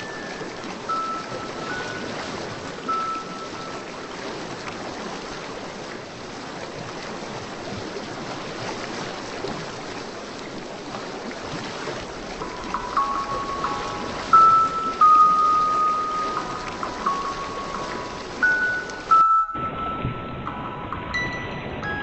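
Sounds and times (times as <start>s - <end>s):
rushing water: 0.0s - 22.0s
short high music notes: 12.4s - 22.0s.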